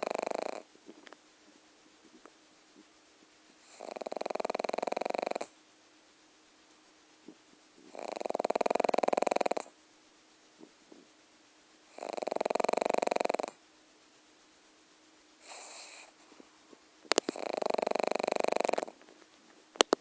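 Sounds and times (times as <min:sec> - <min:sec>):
dog snoring: 0:00.0 - 0:01.1, 0:03.6 - 0:05.6, 0:07.2 - 0:09.8, 0:11.9 - 0:13.6, 0:15.4 - 0:16.4, 0:17.1 - 0:19.0
soft breath: 0:15.4 - 0:17.4.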